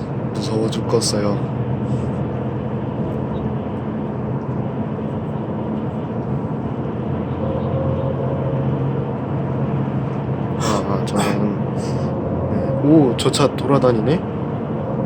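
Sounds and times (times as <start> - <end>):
bus engine hum: 0.0 - 15.0
road and wind noise: 0.0 - 15.0.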